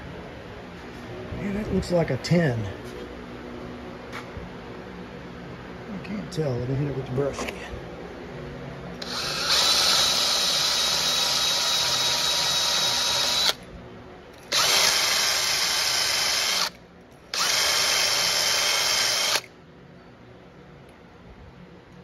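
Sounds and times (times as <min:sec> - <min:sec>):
power drill spinning wire brush: 0:09.0 - 0:13.6, 0:14.5 - 0:19.5.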